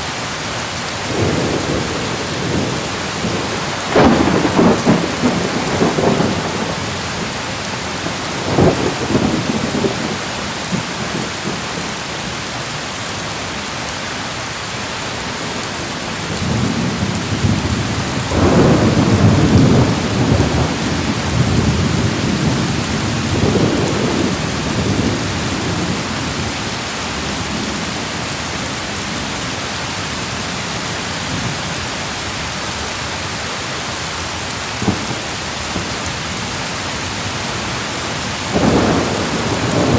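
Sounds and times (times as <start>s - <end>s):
heavy rain: 0.0s - 39.9s
rolling thunder: 1.1s - 11.7s, 16.3s - 26.6s, 34.8s - 36.0s, 37.2s - 39.9s.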